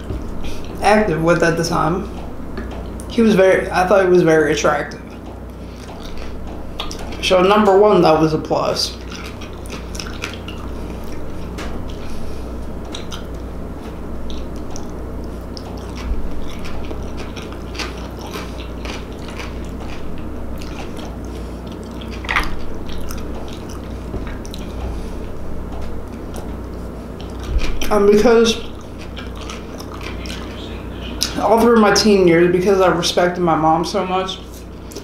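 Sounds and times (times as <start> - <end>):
person chewing food: 0.0 - 0.8, 4.9 - 7.4, 8.9 - 31.6, 34.4 - 35.0
steady low hum: 0.0 - 35.0
wet mouth clicks and smacks: 5.2 - 7.2, 9.0 - 12.0, 12.8 - 13.4, 20.6 - 24.9.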